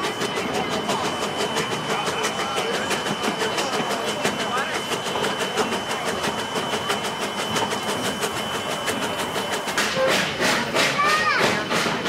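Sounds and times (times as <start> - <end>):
steam train running: 0.0 - 12.0.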